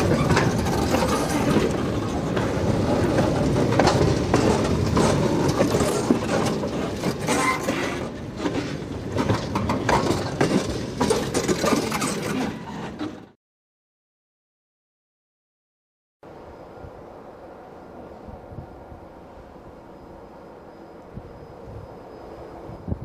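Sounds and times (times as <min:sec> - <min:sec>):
train wheels rumbling and clanking: 0:00.0 - 0:13.4.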